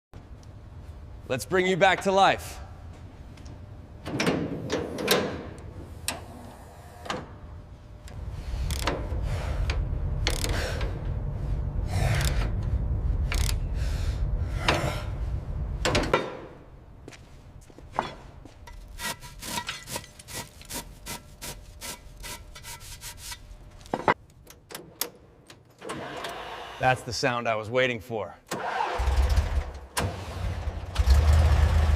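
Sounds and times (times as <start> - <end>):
mechanical clatter: 8.1 - 11.1, 12.1 - 13.6
low rumble: 8.2 - 17.1
scraping and rubbing: 18.7 - 23.8.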